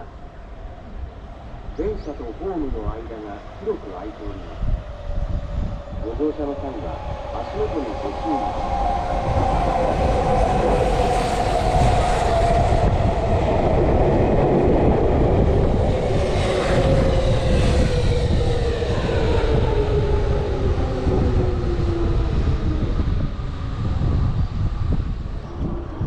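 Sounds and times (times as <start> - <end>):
traction motor whine: 4.6 - 23.6.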